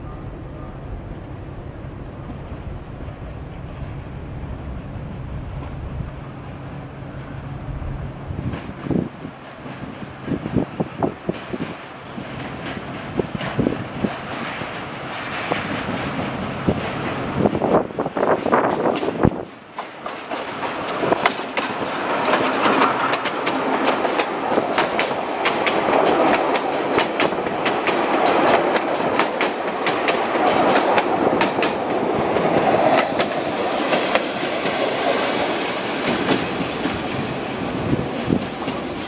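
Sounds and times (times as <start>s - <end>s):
train wheels clickety-clack: 8.4s - 39.0s.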